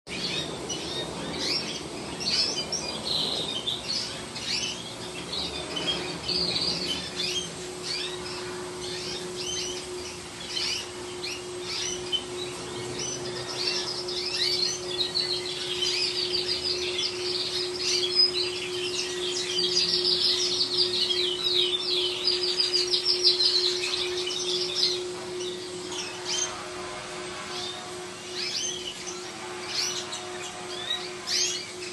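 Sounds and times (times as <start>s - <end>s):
canaries chirping and trilling: 0.1s - 31.9s.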